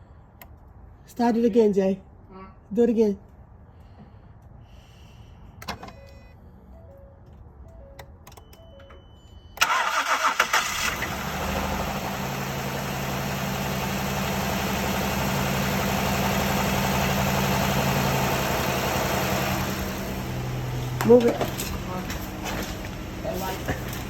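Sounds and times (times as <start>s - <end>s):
short beeps: 7.7s - 9.6s
car starter cranking: 9.6s - 12.6s
car engine idling: 9.6s - 24.0s.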